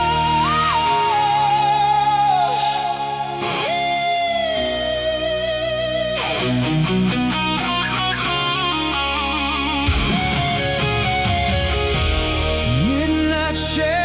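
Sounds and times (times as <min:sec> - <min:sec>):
electric guitar lead: 0:00.0 - 0:14.0
bass and drums: 0:09.7 - 0:14.0.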